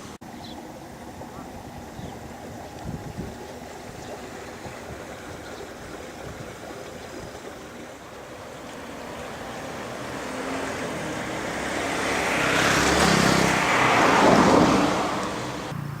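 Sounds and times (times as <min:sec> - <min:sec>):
vehicle driving past: 0:08.4 - 0:16.0.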